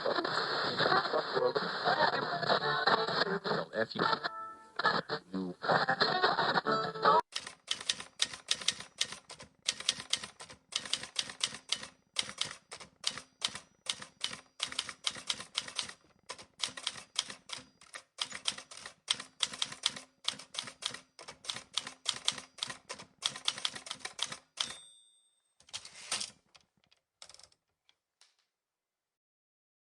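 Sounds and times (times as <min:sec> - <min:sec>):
keyboard typing clicks: 0:07.3 - 0:24.8.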